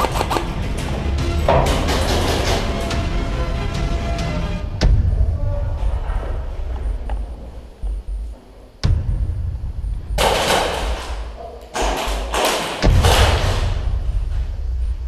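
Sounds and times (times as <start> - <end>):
sharp click: 0.0 - 0.5.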